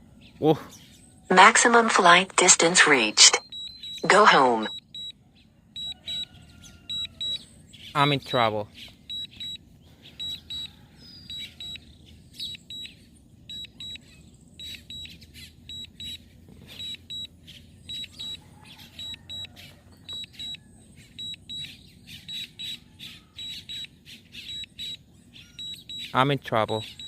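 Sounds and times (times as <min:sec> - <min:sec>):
short high double beeps: 0:01.3 - 0:03.4, 0:04.0 - 0:04.8.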